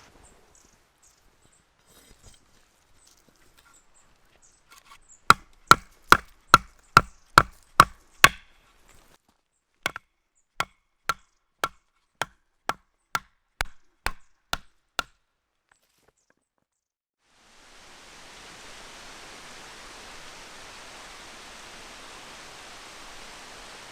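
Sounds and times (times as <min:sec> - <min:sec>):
tent pegs being hammered: 0:05.3 - 0:08.5, 0:09.9 - 0:15.2.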